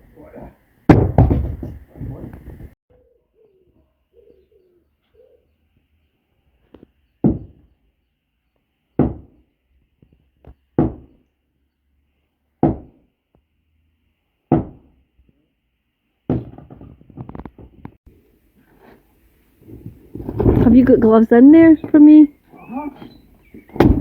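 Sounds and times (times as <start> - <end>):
rapid clattering knocks: 0.9 - 2.8.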